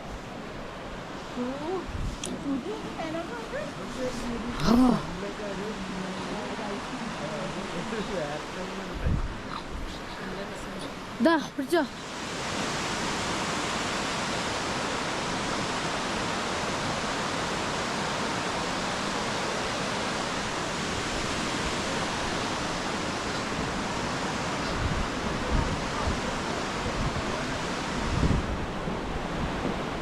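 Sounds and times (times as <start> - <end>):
waterfall rushing: 0.0 - 30.0
wind thumps on microphone: 1.8 - 2.4, 9.0 - 10.0, 23.4 - 30.0.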